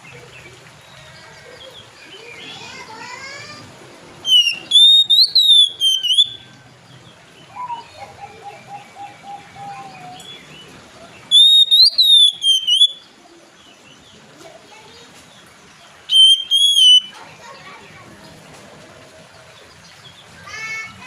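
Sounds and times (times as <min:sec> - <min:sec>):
bird whistling song: 0:04.2 - 0:06.6, 0:07.5 - 0:08.0, 0:11.3 - 0:13.1, 0:16.1 - 0:17.2.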